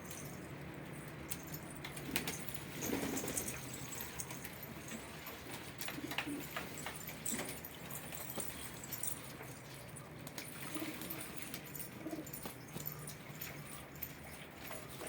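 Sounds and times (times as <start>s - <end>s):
pigeons cooing: 5.8s - 7.5s, 10.5s - 12.5s.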